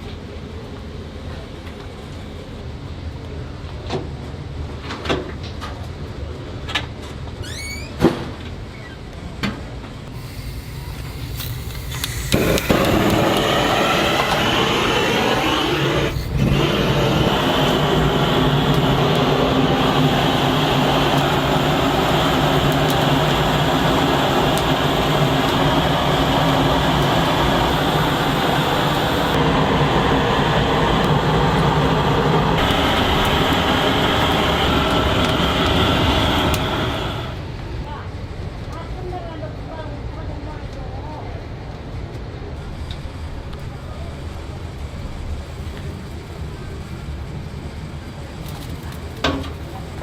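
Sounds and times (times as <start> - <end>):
machine drone with hiss: 10.1 - 37.8.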